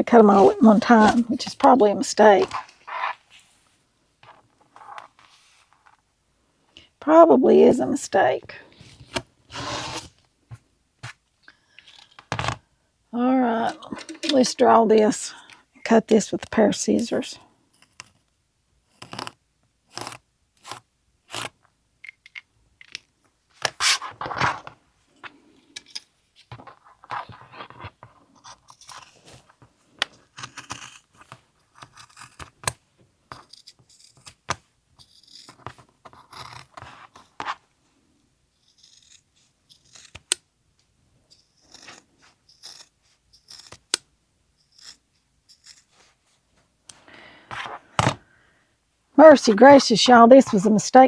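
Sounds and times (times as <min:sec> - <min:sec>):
scissors cutting fabric: 0:18.9 - 0:21.6, 0:28.4 - 0:29.5, 0:30.2 - 0:37.5, 0:38.6 - 0:40.4, 0:41.3 - 0:46.0.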